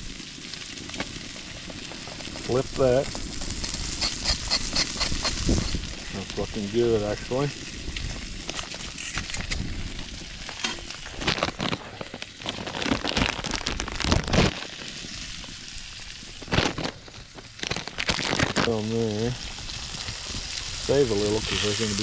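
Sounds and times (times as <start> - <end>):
food sizzling on griddle: 0.0 - 22.0
spatula scrapes and knocks: 3.6 - 5.8.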